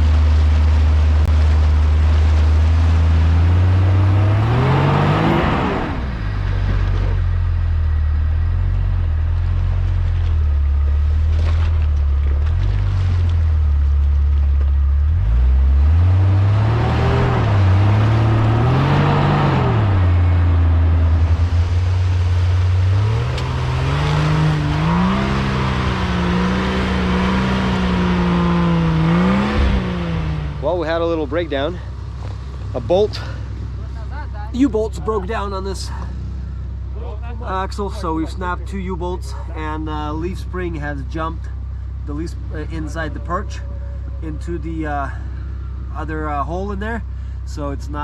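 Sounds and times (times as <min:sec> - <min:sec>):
car engine running and revving: 0:00.0 - 0:48.0.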